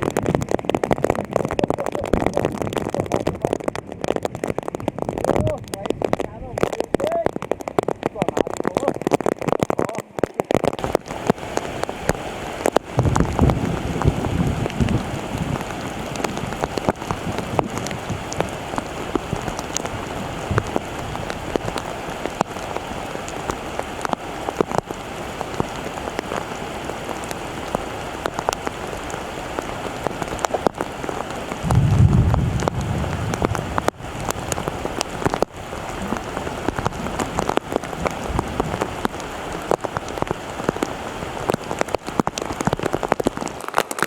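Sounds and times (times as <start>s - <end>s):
rain falling: 0.0s - 44.0s
low rumble: 31.6s - 34.6s.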